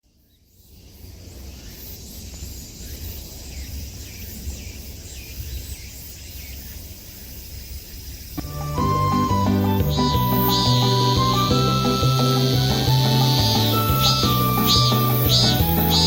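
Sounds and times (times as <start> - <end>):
insects chirring: 0.0 - 16.0
music: 8.4 - 16.0.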